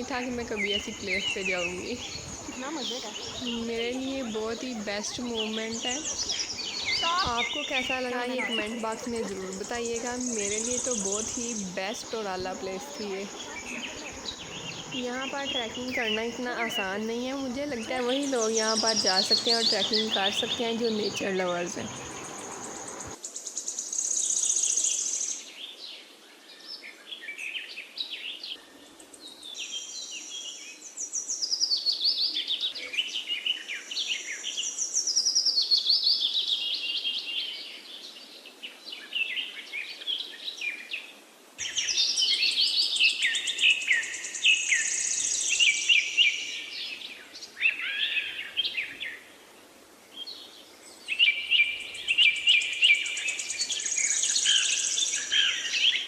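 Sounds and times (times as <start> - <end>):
birds singing and chirping: 0.0 - 23.2, 41.6 - 49.3, 50.1 - 56.0.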